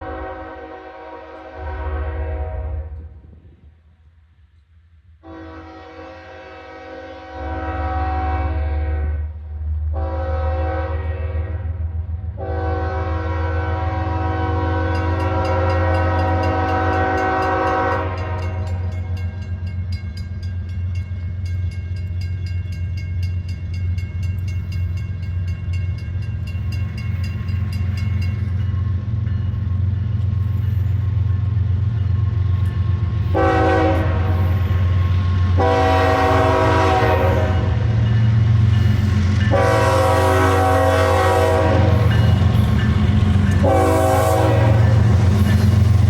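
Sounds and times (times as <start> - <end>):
locomotive air horn blasts: 0.0 - 3.1, 5.2 - 11.8, 12.4 - 18.9, 33.3 - 34.6, 35.6 - 37.9, 39.5 - 42.2, 43.6 - 45.2
locomotive engine rumble: 9.2 - 46.0
train wheels clicking: 14.8 - 46.0.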